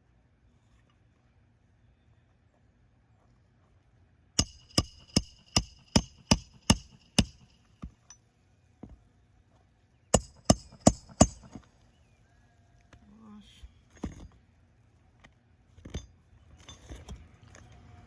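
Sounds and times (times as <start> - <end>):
hammer blows on metal: 4.4 - 7.6, 10.2 - 11.6.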